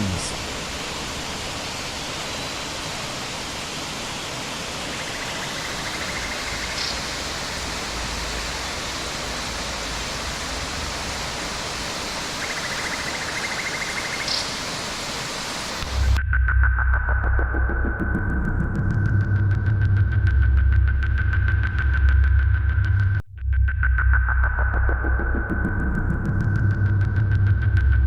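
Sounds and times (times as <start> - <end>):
waterfall roaring: 0.0 - 16.2.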